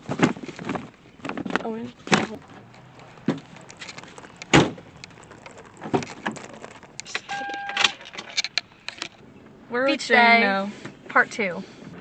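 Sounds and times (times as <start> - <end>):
objects being handled: 0.0 - 9.2
steady electronic beep: 7.2 - 8.0.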